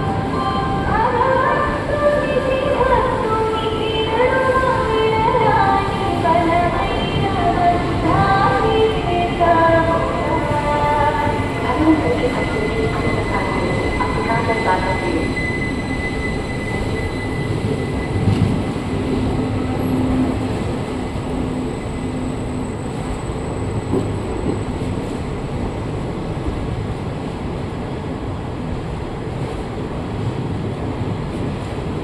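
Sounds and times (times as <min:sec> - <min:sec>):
train wheels rumbling: 0:04.0 - 0:29.6
high wheel squeal: 0:12.3 - 0:20.0.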